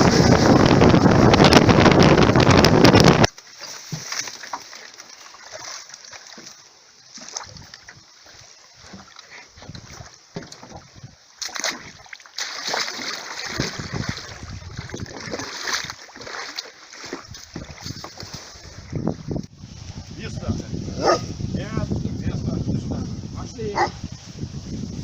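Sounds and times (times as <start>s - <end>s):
waves splashing against shore: 0.0s - 18.9s.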